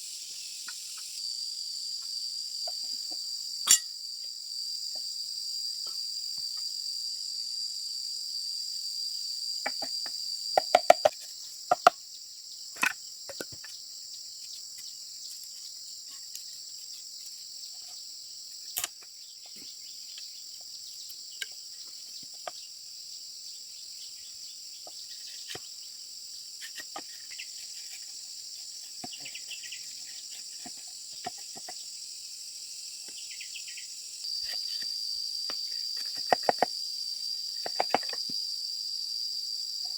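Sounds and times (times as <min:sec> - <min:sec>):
insects chirring: 0:00.0 - 0:39.9
sharp knocks and taps: 0:09.6 - 0:12.0, 0:36.0 - 0:36.7, 0:37.6 - 0:38.3.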